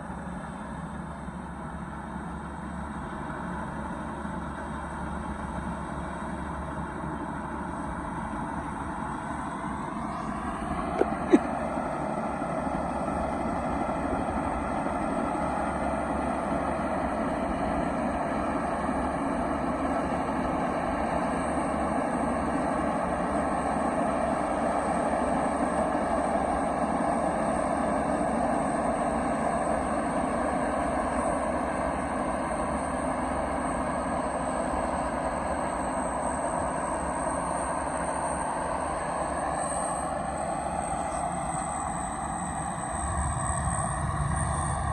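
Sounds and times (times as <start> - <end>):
truck engine running: 0.0 - 44.9.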